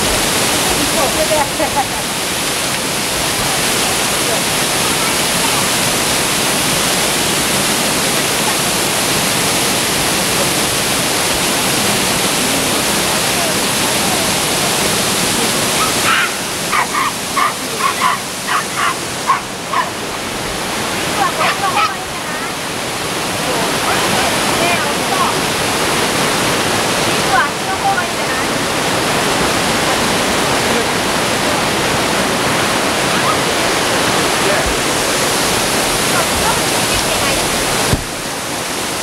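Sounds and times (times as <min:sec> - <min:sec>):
waterfall roaring: 0:00.0 - 0:39.0
short sharp animal calls: 0:15.8 - 0:19.9.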